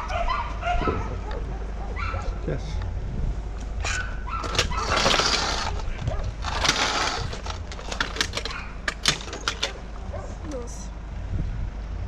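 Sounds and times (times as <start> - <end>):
sharp clicks and knocks: 3.6 - 10.6.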